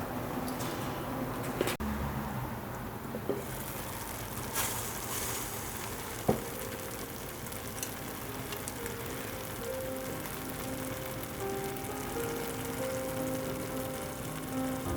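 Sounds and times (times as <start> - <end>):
fried rice sizzling in a pot: 3.4 - 14.9.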